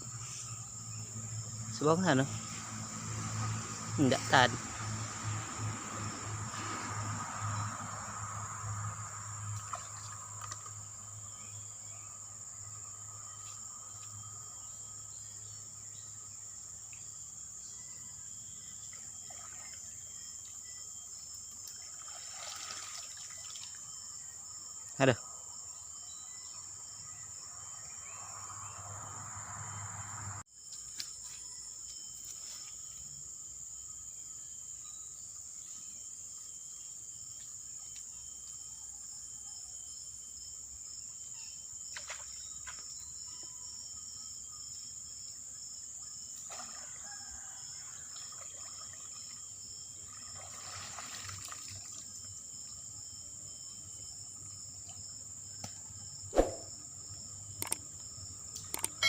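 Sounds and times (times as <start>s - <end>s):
crickets chirring: 0.0s - 59.0s
faint water trickling: 18.8s - 24.1s, 46.6s - 52.8s.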